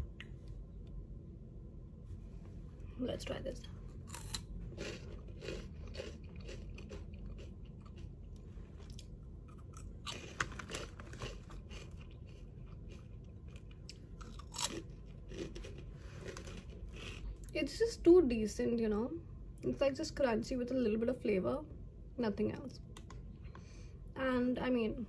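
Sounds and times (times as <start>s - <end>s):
crunchy snack chewing: 4.0s - 17.5s.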